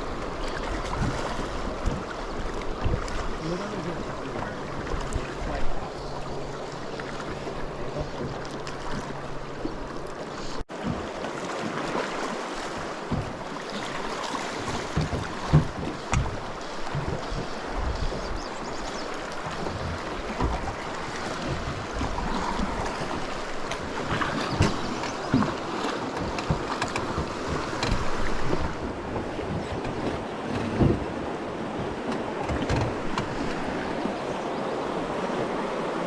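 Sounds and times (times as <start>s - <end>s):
river water flowing: 0.0s - 36.0s
wind on microphone: 14.6s - 25.6s.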